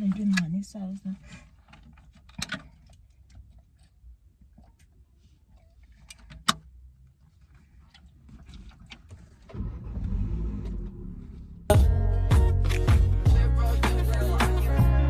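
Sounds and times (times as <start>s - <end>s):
low rumble: 9.6s - 13.9s.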